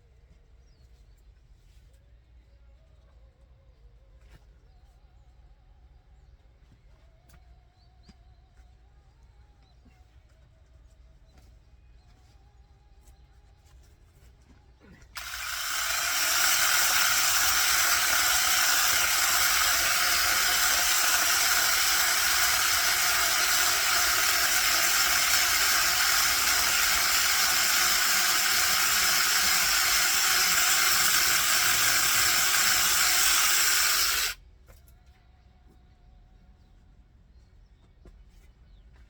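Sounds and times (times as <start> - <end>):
loud steady hiss: 15.2 - 34.4.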